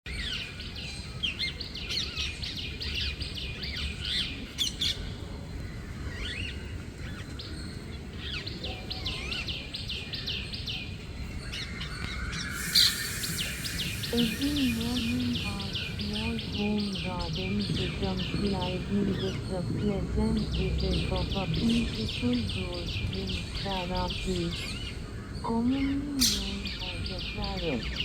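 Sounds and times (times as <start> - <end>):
bird chirping: 6.0 - 28.0.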